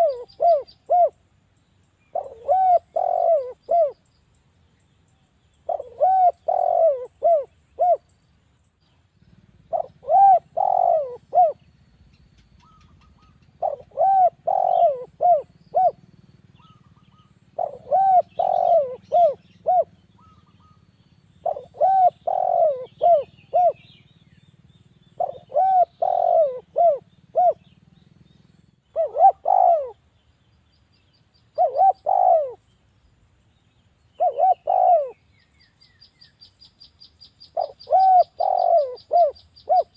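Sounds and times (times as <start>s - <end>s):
dove cooing: 0.0s - 1.2s, 2.1s - 4.0s, 5.6s - 8.1s, 9.2s - 11.8s, 12.5s - 24.1s, 25.1s - 27.8s, 28.9s - 30.0s, 31.6s - 32.6s, 34.2s - 35.3s, 37.5s - 39.9s.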